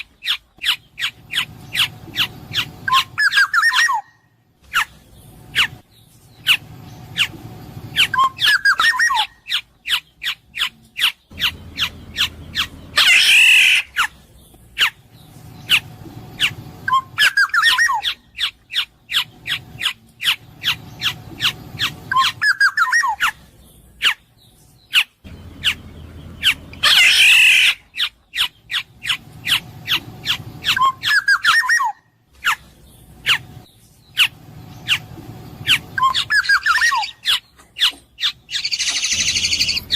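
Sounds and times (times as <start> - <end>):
bird whistled phrases: 0.0 - 4.2, 8.0 - 14.1, 16.4 - 23.4, 26.4 - 32.6, 35.6 - 37.4
bird harsh squawk: 0.0 - 5.8, 6.4 - 15.0, 15.6 - 23.4, 24.9 - 33.5, 35.6 - 39.9.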